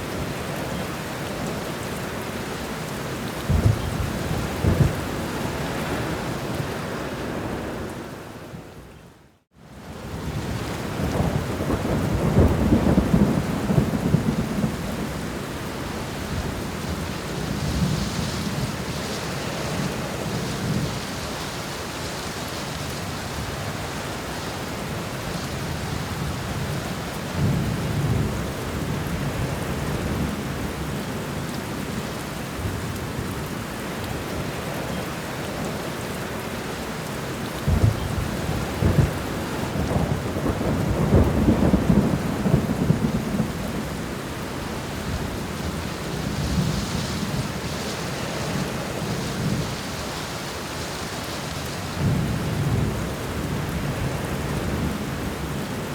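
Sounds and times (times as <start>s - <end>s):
heavy rain: 0.0s - 55.9s
thunder rumbling and clapping: 3.4s - 5.2s, 37.7s - 43.9s.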